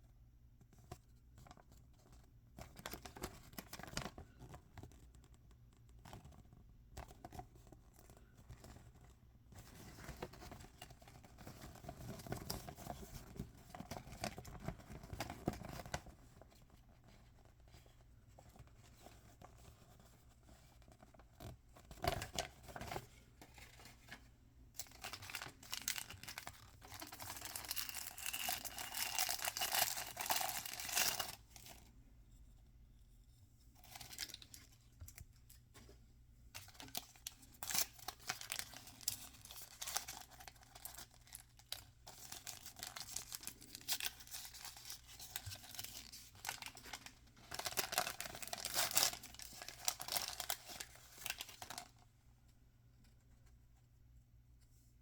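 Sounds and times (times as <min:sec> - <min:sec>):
packaging rustling and tearing: 0:24.8 - 0:31.8, 0:36.6 - 0:52.0.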